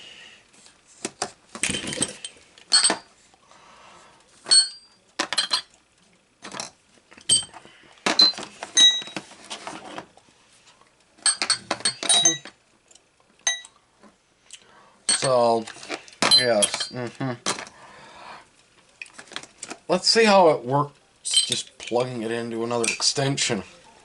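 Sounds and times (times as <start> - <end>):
metal socket extensions clinking: 11.2 - 13.7, 16.2 - 17.0, 21.3 - 22.1.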